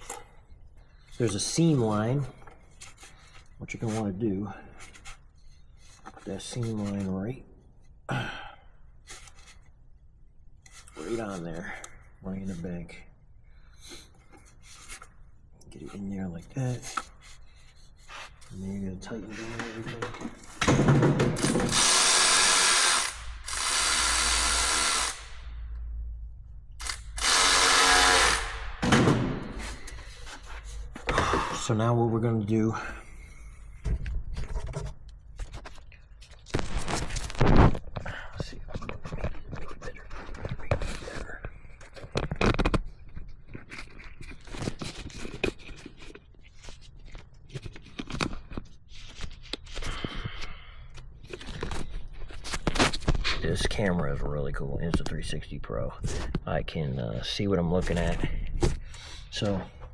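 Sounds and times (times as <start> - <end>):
cordless power driver running: 21.4 - 25.4, 26.8 - 28.7
plastic and rubber parts scraping: 33.8 - 50.5, 57.6 - 59.7.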